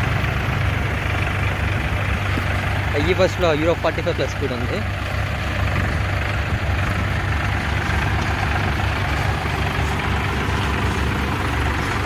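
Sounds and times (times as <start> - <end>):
diesel tractor engines rumbling: 0.0 - 12.0.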